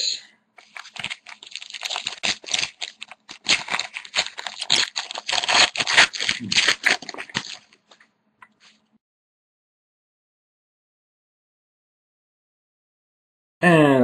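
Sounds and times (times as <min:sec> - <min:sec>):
foil wrapper crinkling and tearing: 0:00.6 - 0:08.0.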